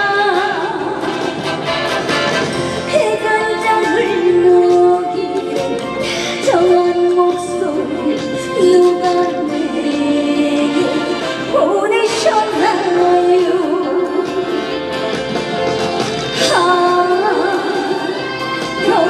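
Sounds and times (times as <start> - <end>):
woman singing: 0.0 - 1.5, 2.6 - 15.2, 16.3 - 19.0
band accompaniment: 0.0 - 19.0.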